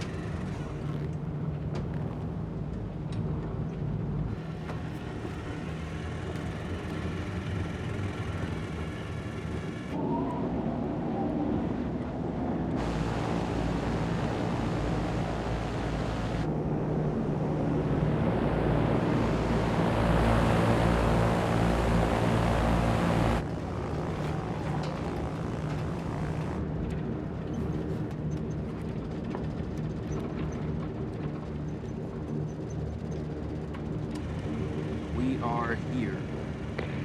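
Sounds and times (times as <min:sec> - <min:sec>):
propeller aircraft engines droning: 0:00.0 - 0:37.0.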